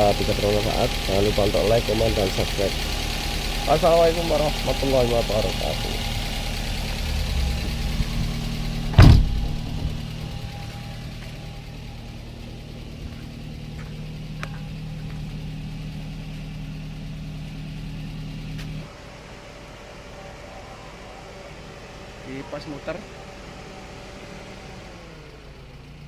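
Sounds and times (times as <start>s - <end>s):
engine idling hum: 0.0s - 26.0s
loud knock: 8.9s - 10.4s.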